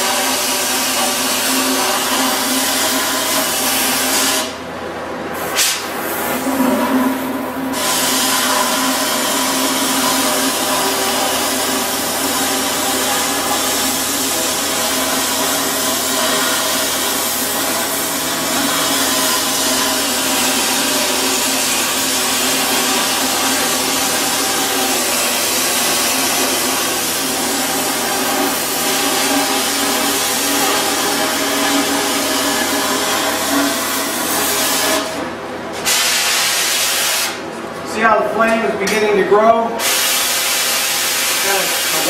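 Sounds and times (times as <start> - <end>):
cutting torch hissing: 7.7 - 35.1, 39.8 - 42.0.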